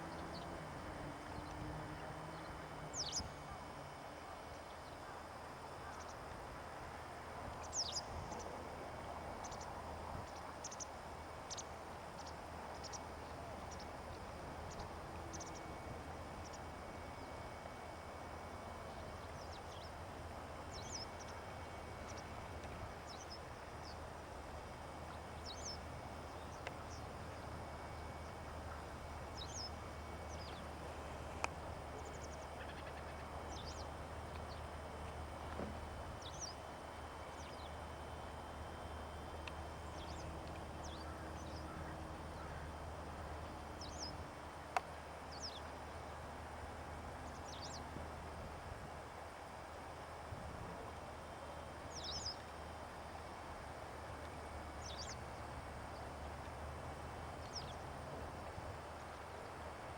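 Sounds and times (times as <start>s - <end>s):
outdoor background hiss: 0.0s - 59.9s
small birds chirping: 2.3s - 3.3s, 7.6s - 8.5s, 25.1s - 30.9s, 57.4s - 57.8s.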